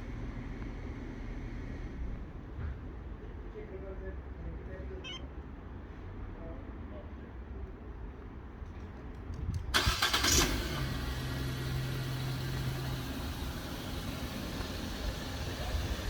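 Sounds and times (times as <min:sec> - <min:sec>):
car engine cranking and starting: 0:09.7 - 0:16.0
car engine idling: 0:09.8 - 0:16.0.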